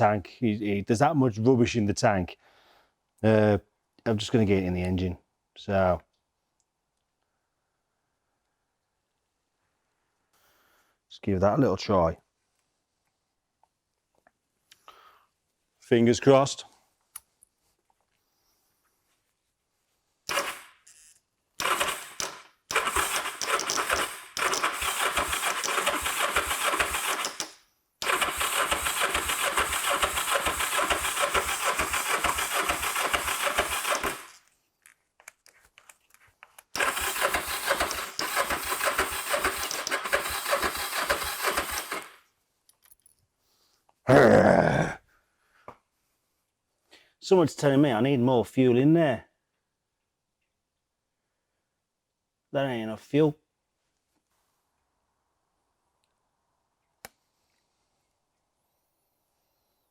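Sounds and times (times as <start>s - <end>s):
motorcycle engine cranking: 21.6s - 34.4s, 36.8s - 42.2s.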